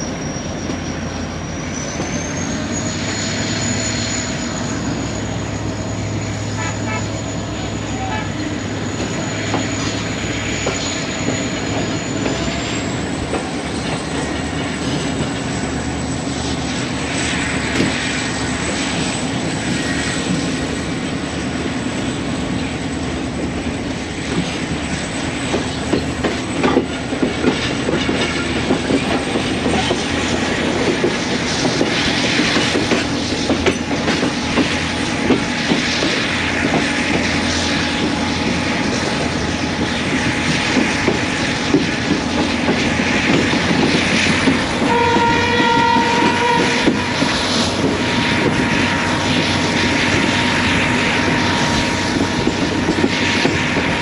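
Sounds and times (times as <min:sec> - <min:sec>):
train wheels clattering: 0:24.2 - 0:54.0.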